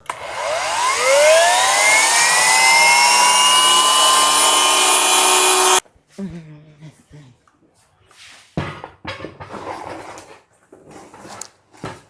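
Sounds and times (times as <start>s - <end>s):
circular saw motor whine: 0.0s - 5.8s.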